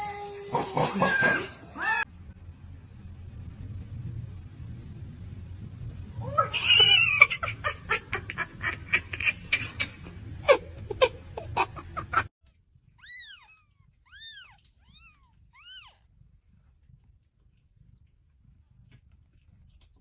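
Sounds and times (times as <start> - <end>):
cat meowing: 13.0 - 16.1.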